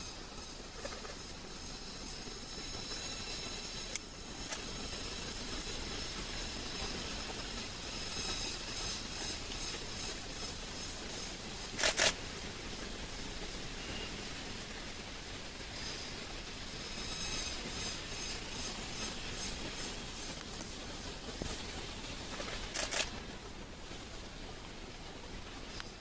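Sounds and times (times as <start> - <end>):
high-pitched insect drone: 0.0 - 4.0, 16.8 - 20.3
faint hiss: 0.0 - 26.0.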